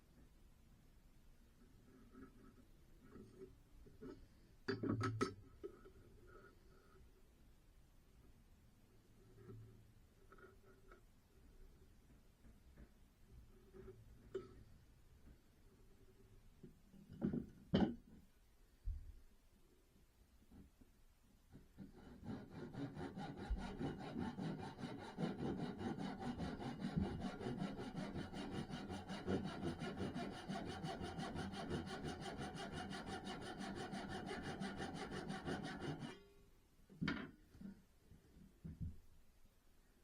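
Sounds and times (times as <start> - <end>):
saw cutting wood: 21.9 - 36.2.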